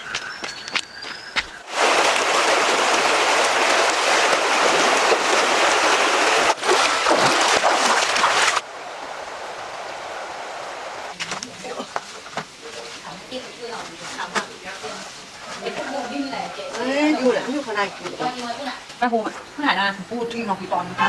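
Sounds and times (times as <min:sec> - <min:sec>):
rushing splashing water: 0:01.6 - 0:11.2.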